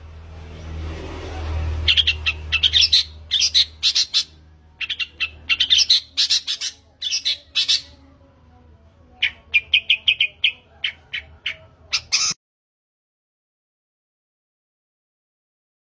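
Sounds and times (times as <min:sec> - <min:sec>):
shrike singing: 0:01.8 - 0:08.1, 0:09.1 - 0:12.4.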